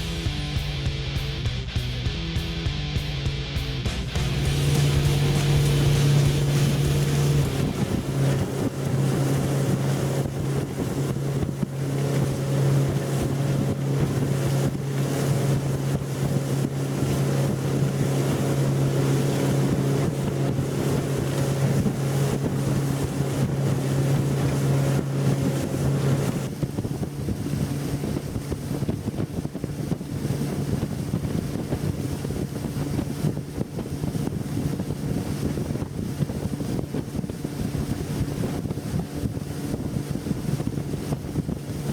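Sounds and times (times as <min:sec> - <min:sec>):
outboard motor drone: 0:03.8 - 0:41.9
rushing water: 0:04.2 - 0:41.9
wind buffeting microphone: 0:04.2 - 0:41.9.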